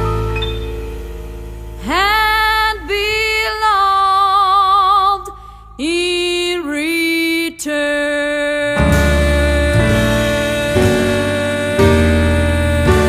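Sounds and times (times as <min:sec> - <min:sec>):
quiet held accompaniment chord: 0:00.0 - 0:05.2, 0:08.8 - 0:13.0
woman singing a slow ballad: 0:01.8 - 0:13.0.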